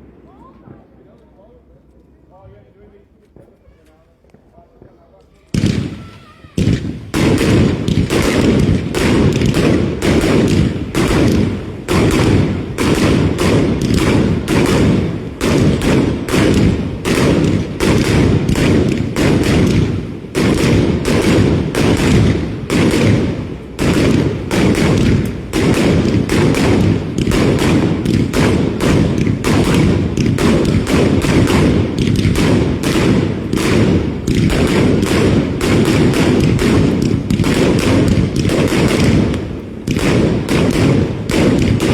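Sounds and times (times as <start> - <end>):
fireworks bangs and thuds: 4.2 - 41.9.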